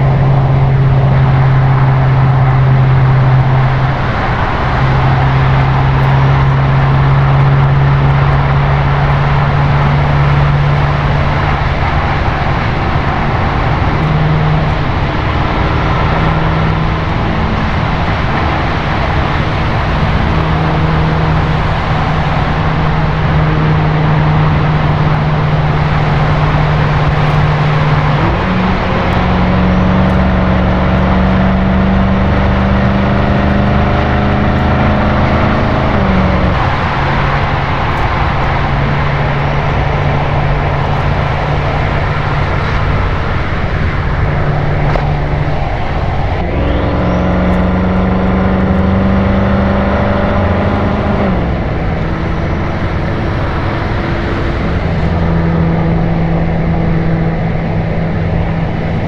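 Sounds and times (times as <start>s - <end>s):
car exhaust note: 0.0s - 59.0s
road and wind noise: 0.0s - 59.0s.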